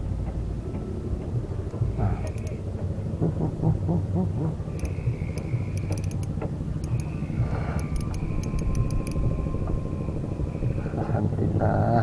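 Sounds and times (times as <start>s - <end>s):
light ticks: 0.0s - 2.6s, 4.7s - 9.8s
low motor rumble: 0.0s - 12.0s.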